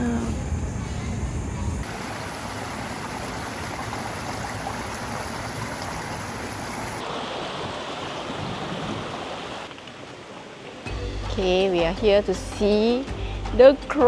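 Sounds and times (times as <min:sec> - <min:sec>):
running water: 0:01.8 - 0:10.9.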